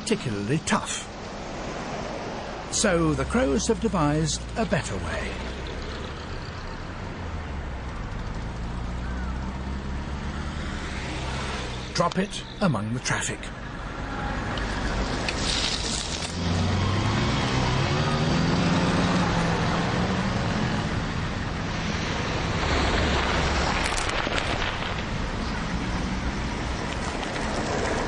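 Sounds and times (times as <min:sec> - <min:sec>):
cars driving past: 0:00.8 - 0:12.8, 0:13.4 - 0:28.0
car engine accelerating away: 0:16.3 - 0:20.4.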